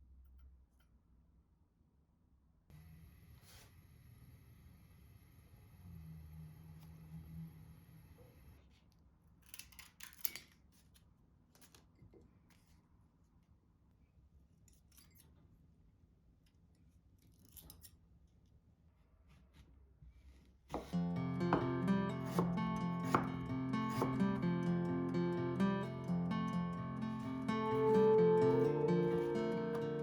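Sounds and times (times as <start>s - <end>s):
acoustic guitar music: 20.8s - 30.0s.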